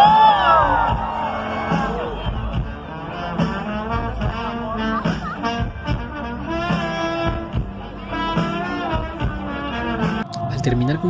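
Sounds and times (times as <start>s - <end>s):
regular drum beat: 0.0s - 10.2s
band music: 0.0s - 11.0s.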